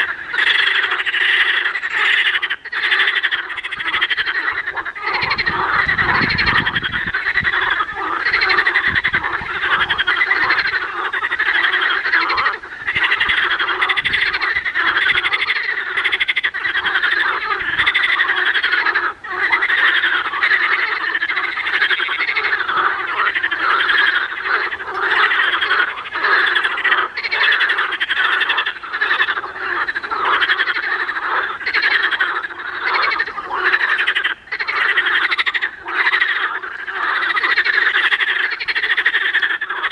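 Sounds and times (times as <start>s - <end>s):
chorus of frogs croaking: 0.0s - 39.9s.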